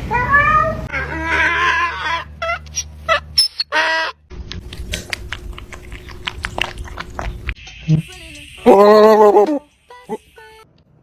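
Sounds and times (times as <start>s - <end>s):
fowl squawking: 0.9s - 4.2s.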